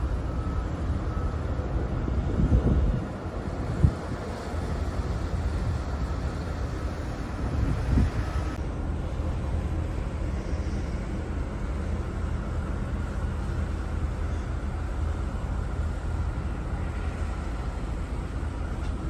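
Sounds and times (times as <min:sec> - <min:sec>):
ship engine rumble: 0:00.0 - 0:19.0
wind on microphone: 0:01.7 - 0:08.6.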